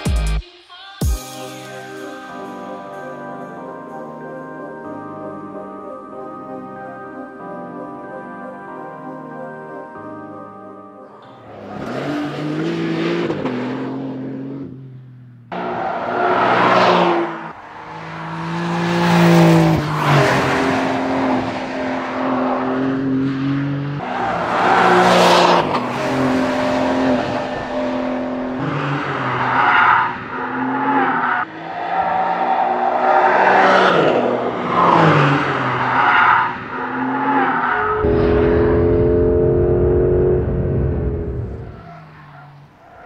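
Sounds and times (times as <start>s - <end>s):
car engine revving: 11.2s - 43.0s
steady engine drone: 37.8s - 41.9s.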